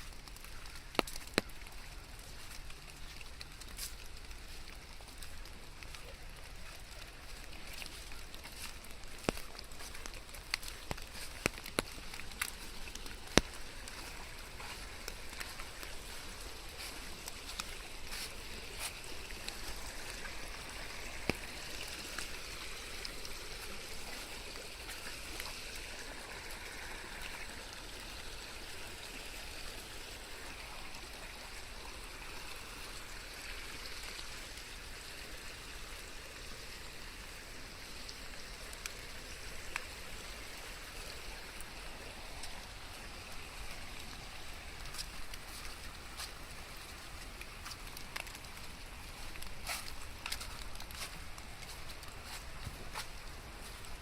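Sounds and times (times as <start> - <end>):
steady rain: 0.0 - 54.0
water trickling and running: 0.0 - 54.0
sharp drip clicks: 0.1 - 16.4.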